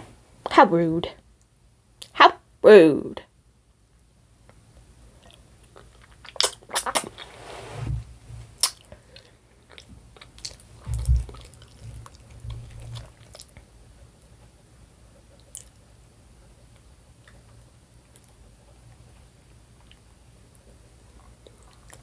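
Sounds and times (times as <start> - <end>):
chewing and biting food: 5.2 - 7.3, 8.6 - 13.7.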